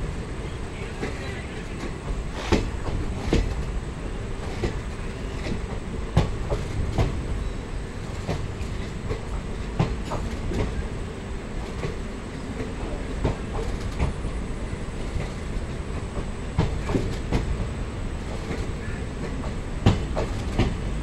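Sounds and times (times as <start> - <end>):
train coaches rumbling past: 0.0 - 21.0
train wheels knocking over rail joints: 1.8 - 3.8, 15.1 - 21.0.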